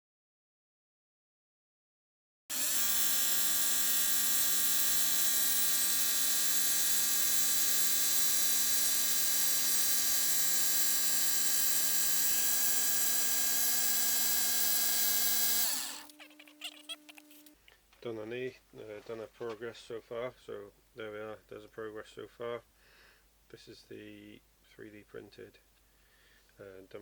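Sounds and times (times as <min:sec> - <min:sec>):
machine-tool spindle whining: 0:02.5 - 0:17.6.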